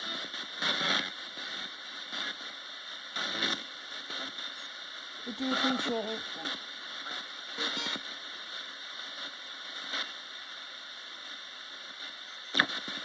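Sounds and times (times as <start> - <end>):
radio static hiss: 0.0 - 13.0
short radio blips: 7.6 - 8.0.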